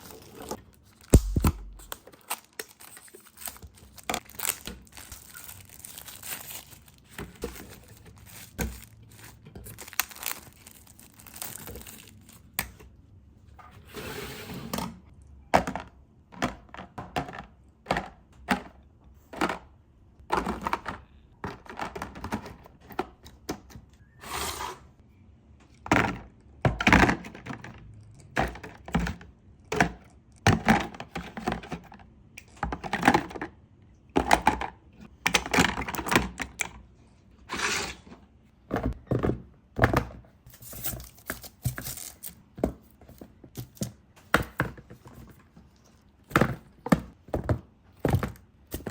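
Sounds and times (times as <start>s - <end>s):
wrappers crinkling: 0.8s - 12.6s
plastic containers clacking: 15.5s - 23.7s.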